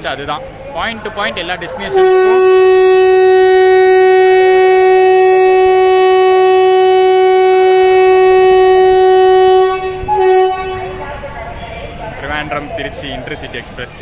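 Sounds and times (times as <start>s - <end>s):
locomotive air horn: 1.9s - 11.0s.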